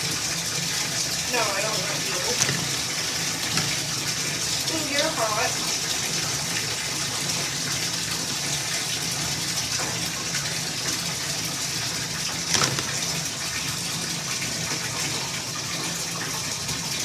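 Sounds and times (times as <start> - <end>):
water pouring into bathtub: 0.0 - 17.0.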